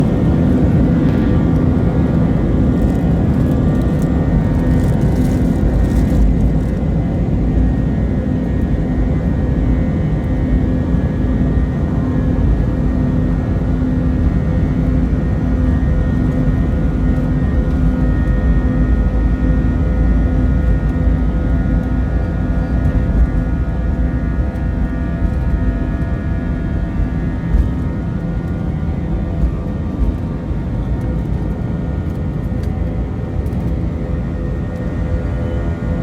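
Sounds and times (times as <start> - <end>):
steady hums: 0.0 - 7.6
jet engines droning: 0.0 - 36.0.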